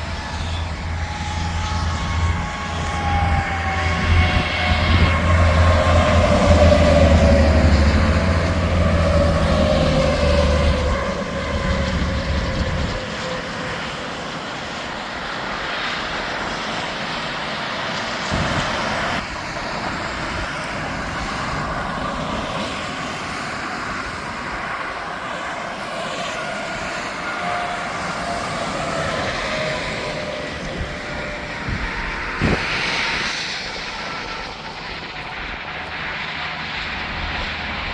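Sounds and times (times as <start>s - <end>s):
truck passing with engine rumble: 0.0s - 14.0s, 24.6s - 37.9s
highway traffic noise: 0.0s - 37.9s.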